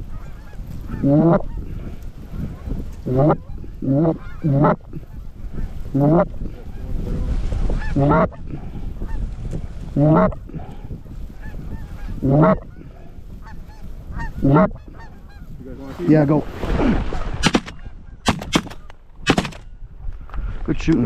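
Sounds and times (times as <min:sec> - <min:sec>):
distant flock of geese honking: 0:00.0 - 0:05.9, 0:11.3 - 0:15.6
gusty wind: 0:00.0 - 0:21.0
goose honks: 0:11.4 - 0:15.5.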